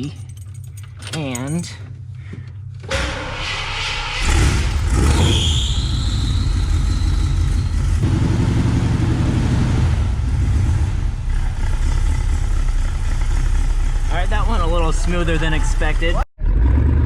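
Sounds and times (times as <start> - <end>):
engine starting and rumbling: 0.0 - 17.0
high squeal: 2.9 - 8.0.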